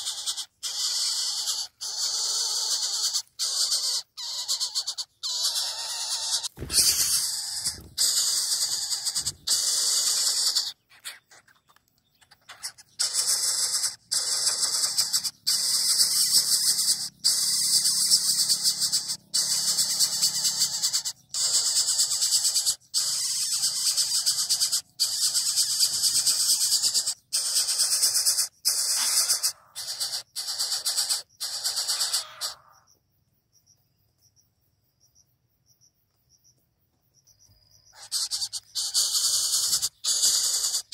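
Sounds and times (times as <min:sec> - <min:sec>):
bird chick hissing squeal: 0:00.0 - 0:11.5, 0:12.4 - 0:32.8, 0:38.0 - 0:40.9.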